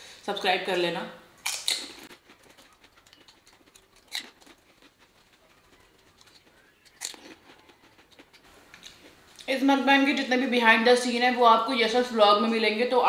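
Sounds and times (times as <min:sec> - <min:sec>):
crunchy chewing: 0:01.4 - 0:09.5.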